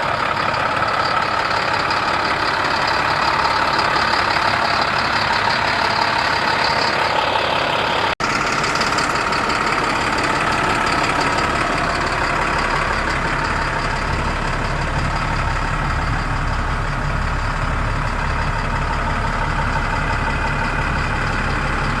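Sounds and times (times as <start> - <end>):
diesel truck engine idling: 0.0 - 22.0.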